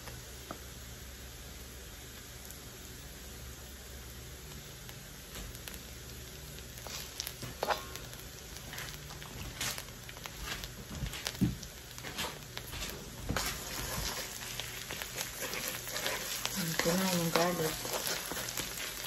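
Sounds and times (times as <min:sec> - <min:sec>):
garlic sizzling in butter: 0:00.0 - 0:19.0
wooden spoon stirring: 0:12.0 - 0:19.0.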